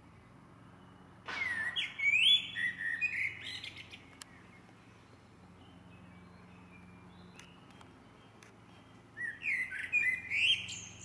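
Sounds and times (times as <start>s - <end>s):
songbird singing: 0.0s - 11.0s
faint bird calls: 0.8s - 11.0s.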